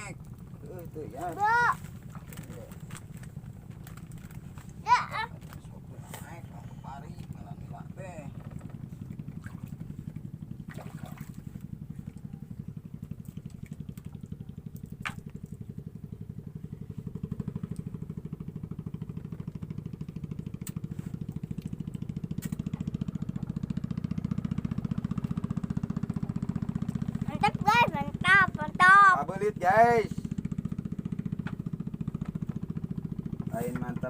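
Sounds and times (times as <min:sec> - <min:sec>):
small engine puttering: 0:00.0 - 0:34.0.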